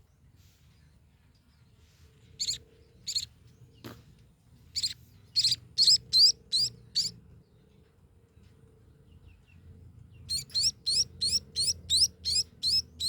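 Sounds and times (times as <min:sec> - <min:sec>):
baby birds chirping: 0:02.4 - 0:03.3, 0:04.7 - 0:07.2, 0:10.3 - 0:13.0.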